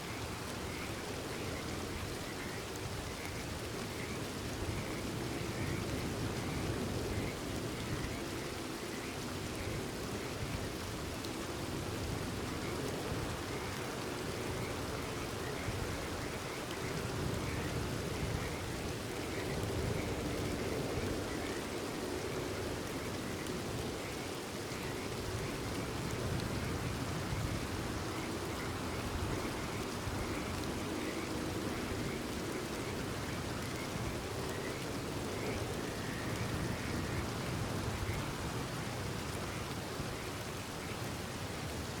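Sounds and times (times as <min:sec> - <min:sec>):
steady rain: 0:00.0 - 0:42.0
frogs calling: 0:12.4 - 0:41.0.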